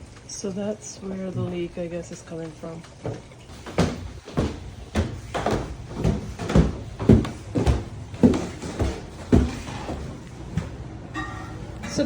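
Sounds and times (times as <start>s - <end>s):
dull thuds: 3.5s - 10.7s.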